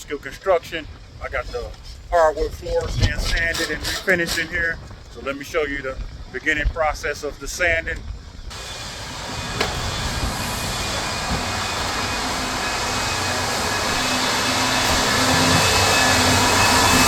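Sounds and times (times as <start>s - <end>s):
floor sander grinding: 8.5s - 17.0s.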